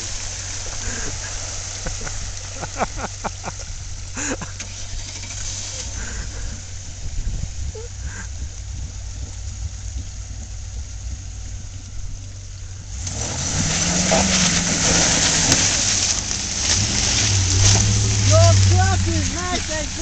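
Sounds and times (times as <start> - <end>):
car engine running low: 0.0 - 20.0
water splashing: 0.0 - 20.0.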